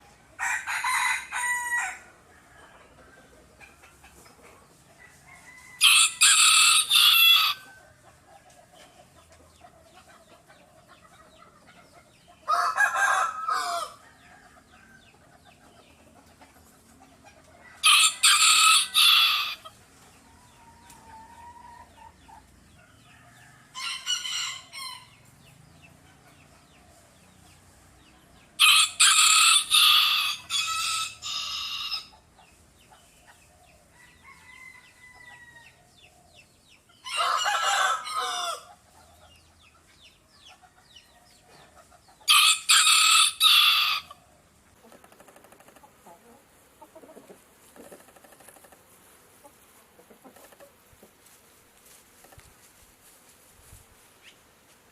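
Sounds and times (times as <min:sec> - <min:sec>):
rooster crowing: 0:00.4 - 0:03.0, 0:05.0 - 0:07.8, 0:12.5 - 0:15.0, 0:17.6 - 0:19.7, 0:23.1 - 0:25.1, 0:28.6 - 0:32.1, 0:33.9 - 0:35.9, 0:37.0 - 0:38.8, 0:42.3 - 0:44.2.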